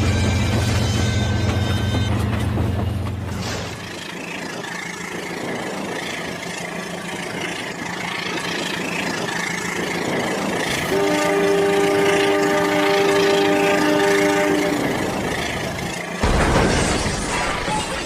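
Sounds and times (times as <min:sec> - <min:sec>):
toy train running on track: 0:03.7 - 0:16.2.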